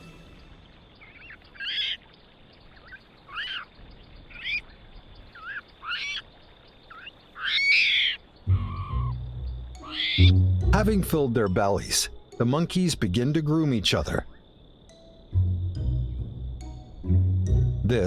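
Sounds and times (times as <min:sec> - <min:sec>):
short chirping animal calls: 0:01.0 - 0:02.1, 0:02.8 - 0:03.7, 0:05.3 - 0:06.3, 0:06.9 - 0:09.2, 0:09.8 - 0:10.4.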